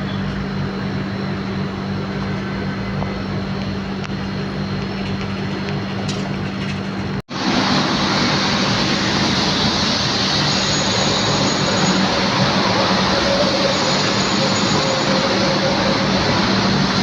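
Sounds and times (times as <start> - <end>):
jet airliner engine rushing: 0.0 - 17.0.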